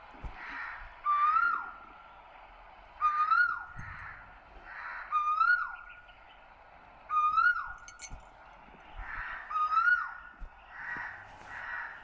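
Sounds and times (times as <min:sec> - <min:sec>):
bird calling: 0:00.2 - 0:01.9, 0:03.0 - 0:06.4, 0:07.1 - 0:08.1, 0:08.8 - 0:12.0.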